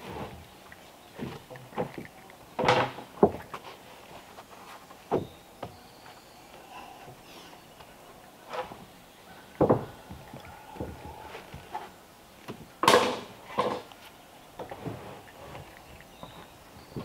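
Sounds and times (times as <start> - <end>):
wooden boards clattering: 9.6 - 10.2, 12.8 - 13.9
wooden boards knocking: 9.6 - 11.0.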